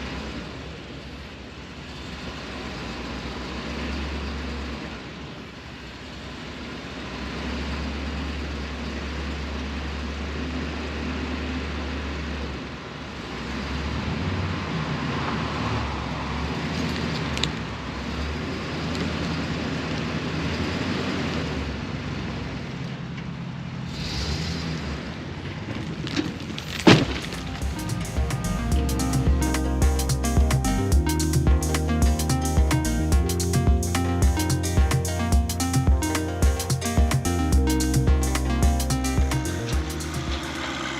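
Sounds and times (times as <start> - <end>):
tractor diesel engine running: 26.7 - 40.9.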